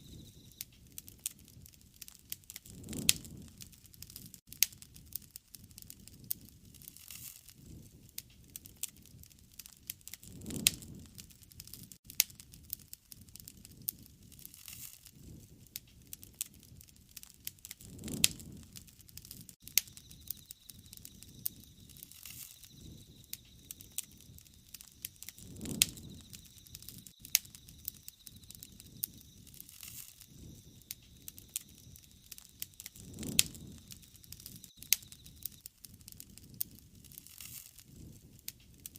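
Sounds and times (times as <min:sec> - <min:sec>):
bonfire crackling and popping: 0:00.0 - 0:38.9.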